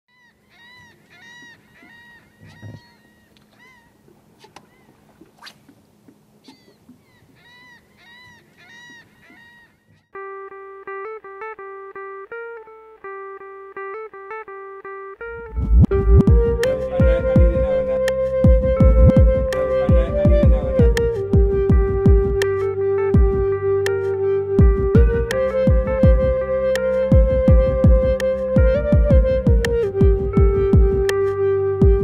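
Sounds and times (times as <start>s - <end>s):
short bird calls: 0.1s - 5.8s, 6.4s - 10.2s
plucked guitar music: 10.2s - 32.0s
faint rushing background: 15.2s - 23.8s.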